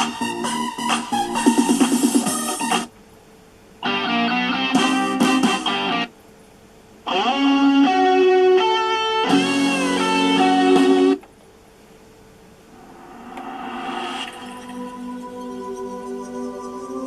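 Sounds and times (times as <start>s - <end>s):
guitar music through speakers: 0.0s - 2.9s, 3.8s - 6.1s, 7.0s - 11.2s.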